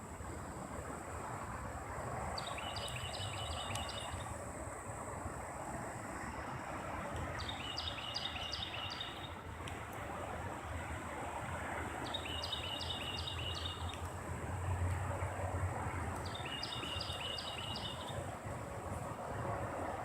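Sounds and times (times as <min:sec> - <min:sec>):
low rumble of wind or traffic: 0:00.0 - 0:20.0
songbird singing: 0:02.3 - 0:04.4, 0:07.2 - 0:09.4, 0:12.0 - 0:14.2, 0:16.0 - 0:18.3.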